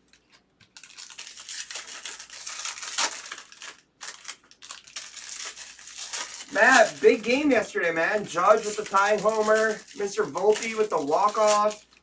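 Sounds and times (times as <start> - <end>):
plastic wrapping crinkling and tearing: 0.0 - 12.0.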